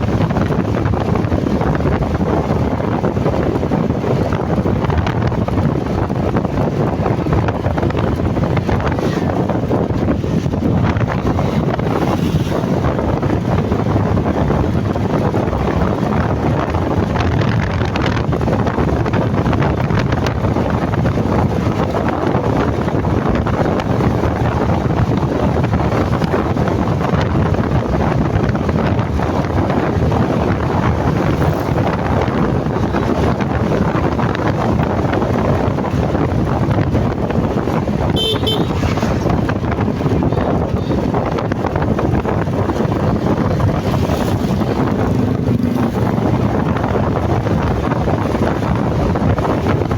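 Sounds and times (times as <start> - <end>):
motorcycle engine: 0.0 - 49.9
road noise: 0.0 - 49.9
wind buffeting microphone: 0.0 - 49.9.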